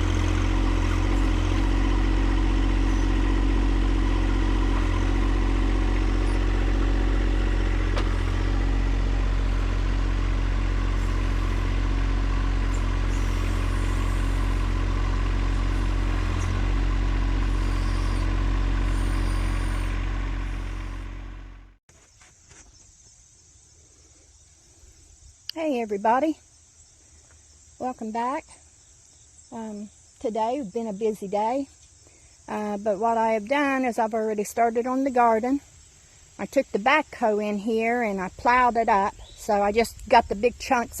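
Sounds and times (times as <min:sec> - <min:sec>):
engine running steadily: 0:00.0 - 0:21.8, 0:36.4 - 0:41.0.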